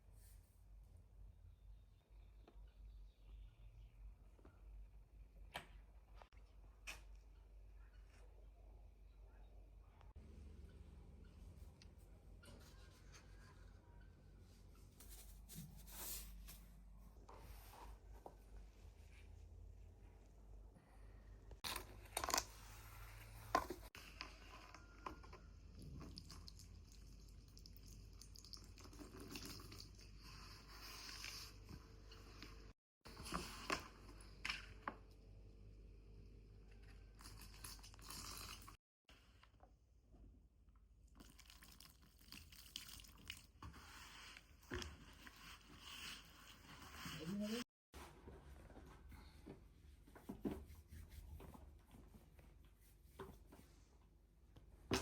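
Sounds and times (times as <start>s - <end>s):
soft handling noises: 11.3s - 20.3s.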